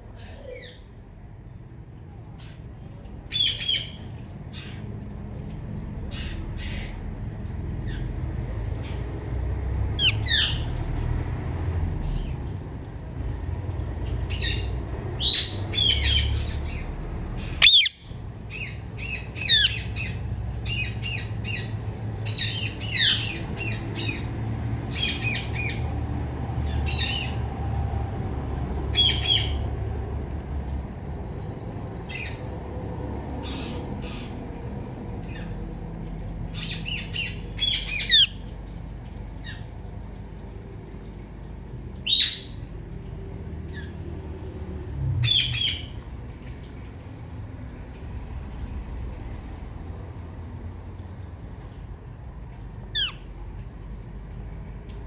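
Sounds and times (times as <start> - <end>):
parakeet chirps and squawks: 0.2 - 0.9, 2.3 - 4.9, 6.0 - 7.2, 10.0 - 11.0, 14.1 - 25.9, 26.7 - 27.5, 28.9 - 29.7, 32.1 - 32.5, 33.4 - 34.4, 36.5 - 38.5, 42.0 - 42.6, 45.2 - 46.0, 52.9 - 53.4.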